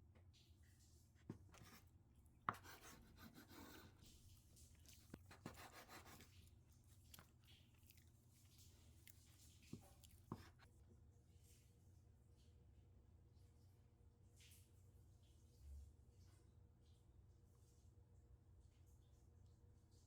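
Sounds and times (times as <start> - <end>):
scratchy rustling: 2.5 - 10.7.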